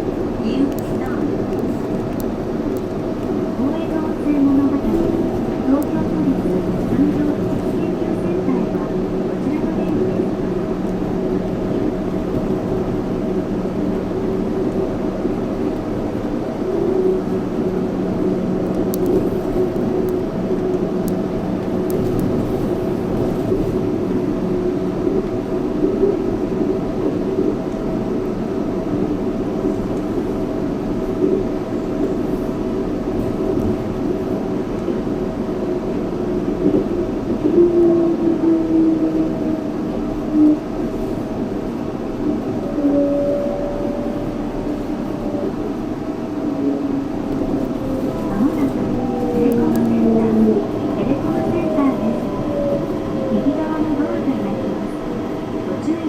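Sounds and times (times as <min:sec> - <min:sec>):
train tyres and motor hum: 0:00.0 - 0:56.0
constant whine: 0:42.2 - 0:56.0.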